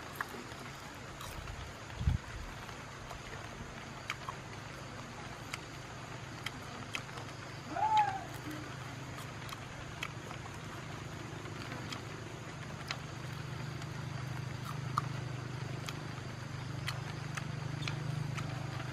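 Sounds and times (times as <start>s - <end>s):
steady low hum: 0.0s - 18.9s
person crunching food: 0.1s - 1.5s, 14.6s - 15.1s.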